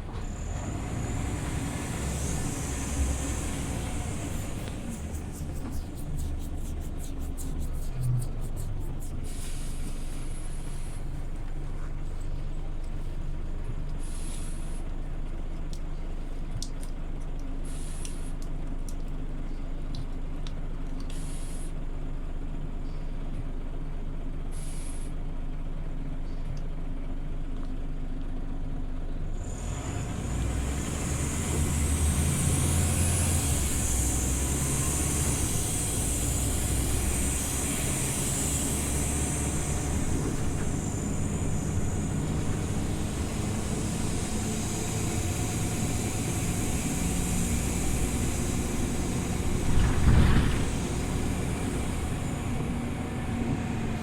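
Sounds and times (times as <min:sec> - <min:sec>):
bus engine: 0:00.0 - 0:54.0
air brake hiss: 0:09.2 - 0:11.1, 0:14.0 - 0:14.9, 0:17.6 - 0:18.4, 0:21.1 - 0:21.8, 0:24.5 - 0:25.2, 0:32.3 - 0:52.4.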